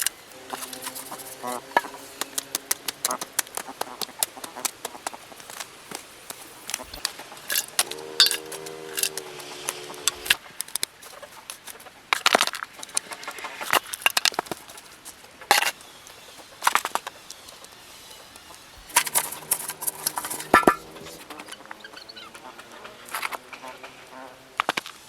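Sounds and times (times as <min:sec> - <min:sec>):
chickens clucking: 0:00.0 - 0:10.4, 0:18.4 - 0:24.2.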